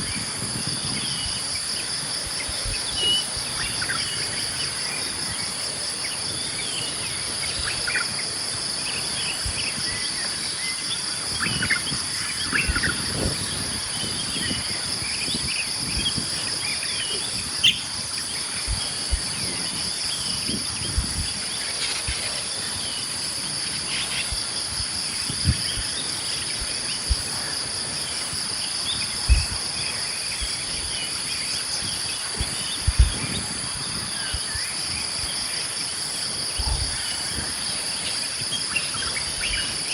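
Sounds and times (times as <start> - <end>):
insects chirring: 0.0 - 39.9
bird chirps: 17.6 - 17.9.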